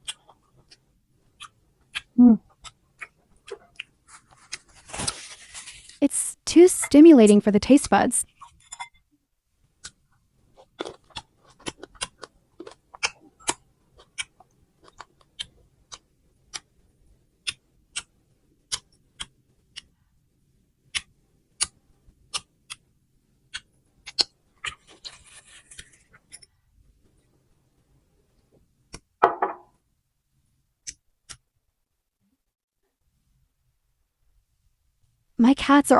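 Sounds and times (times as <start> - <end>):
chewing crunchy fruit: 9.8 - 16.0.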